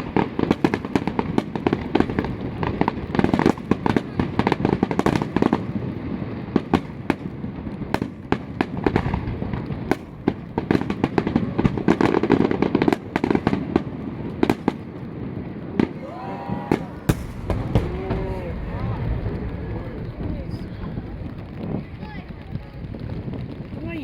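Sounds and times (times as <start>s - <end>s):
fireworks bangs and crackles: 0.0s - 24.0s
low rumble: 16.0s - 23.2s.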